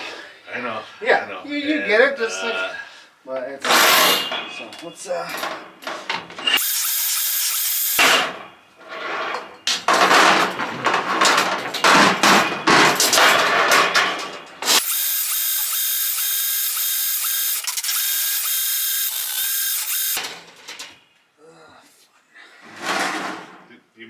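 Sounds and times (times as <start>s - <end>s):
drain cable rattling: 4.0s - 14.8s
drain machine whining: 5.3s - 8.6s, 9.3s - 20.2s.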